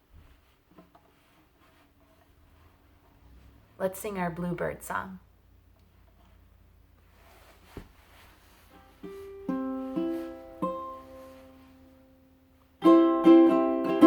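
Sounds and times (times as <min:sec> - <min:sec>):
strummed acoustic chords: 0:08.7 - 0:14.0
plucked string notes: 0:08.8 - 0:14.0.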